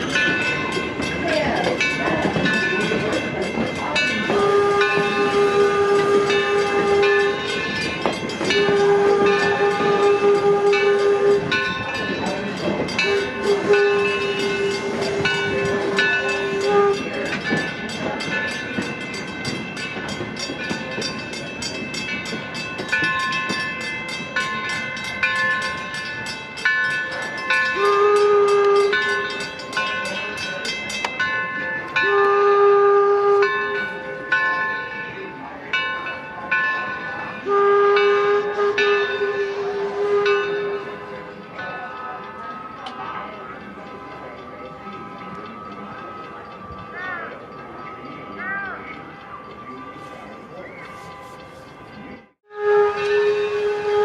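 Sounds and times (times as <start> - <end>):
train running noise: 0.0 - 54.0
steam locomotive whistle: 4.0 - 18.3, 27.6 - 30.2, 31.9 - 34.3, 37.3 - 51.7, 52.4 - 54.0.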